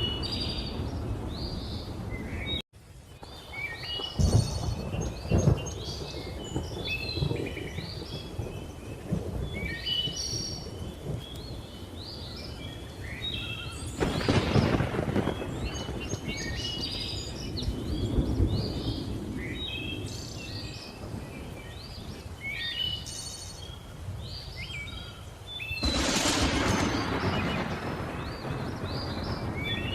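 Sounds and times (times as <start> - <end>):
rolling thunder: 3.2 - 12.3, 13.9 - 22.2, 25.8 - 29.9
thunder crack: 3.6 - 9.7, 14.0 - 19.4, 25.8 - 29.9.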